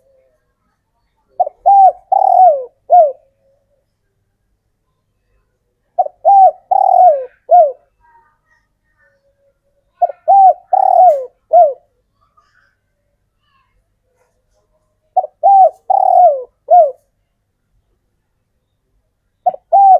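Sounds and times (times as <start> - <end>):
dove cooing: 0.0 - 0.4, 1.3 - 3.8, 6.0 - 7.9, 10.0 - 11.9, 15.2 - 17.1, 19.4 - 19.9.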